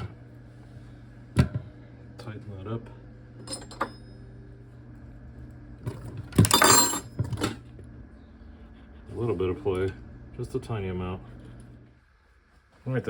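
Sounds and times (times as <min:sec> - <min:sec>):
tools clinking on bicycle hub: 0:06.5 - 0:07.2.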